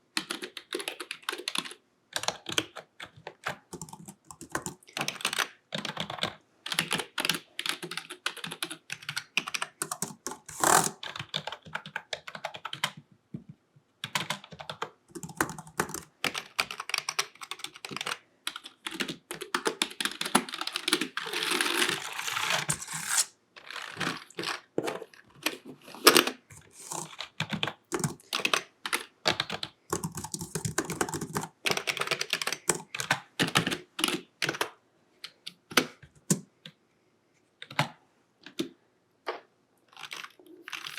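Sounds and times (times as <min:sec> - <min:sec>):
typing on computer keyboard: 0:00.1 - 0:13.1, 0:14.0 - 0:22.9, 0:26.5 - 0:36.5.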